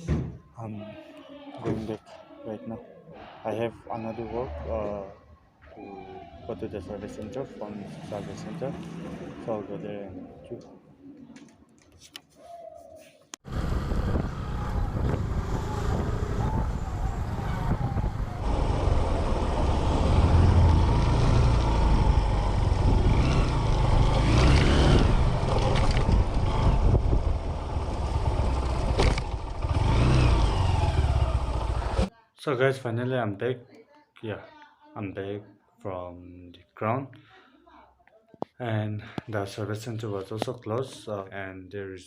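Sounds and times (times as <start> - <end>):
vehicle engine and road rumble: 13.4 - 32.1.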